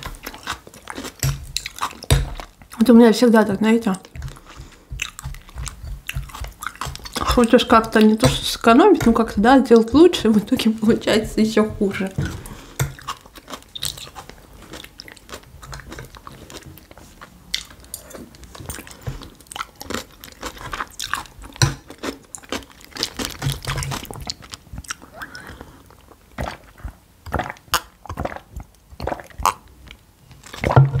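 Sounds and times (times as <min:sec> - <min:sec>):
person chewing and crunching food: 0:00.0 - 0:03.0, 0:03.6 - 0:31.0
wet mouth sounds: 0:04.0 - 0:08.5, 0:20.9 - 0:29.7.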